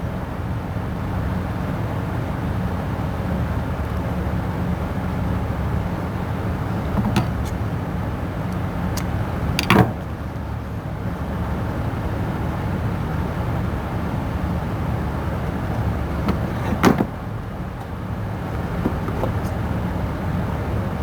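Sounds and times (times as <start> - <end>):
low workshop rumble: 5.0 - 10.8, 13.7 - 21.0.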